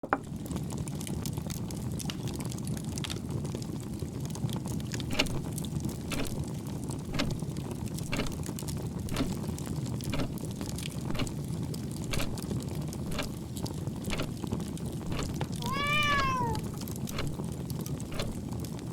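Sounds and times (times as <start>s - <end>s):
sharp ticks: 6.1s - 6.4s, 8.0s - 8.5s, 9.1s - 10.4s, 11.1s - 11.4s, 12.1s - 12.4s, 13.1s - 13.4s, 15.0s - 17.4s.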